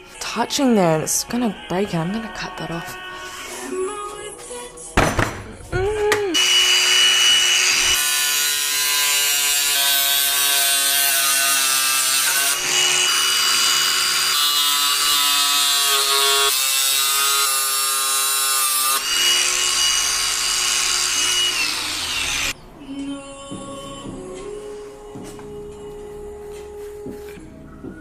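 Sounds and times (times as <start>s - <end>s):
power tool cutting metal: 6.4s - 22.6s.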